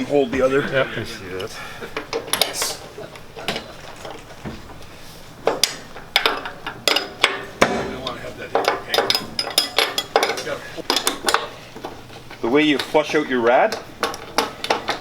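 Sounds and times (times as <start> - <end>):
metal tools clinking on fittings: 2.0 - 4.2, 5.5 - 15.0.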